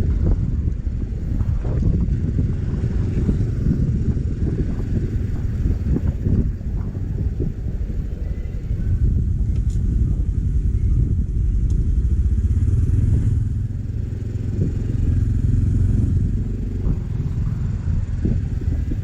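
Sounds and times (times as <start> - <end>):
motorcycle engine and road rumble: 0.0 - 19.0.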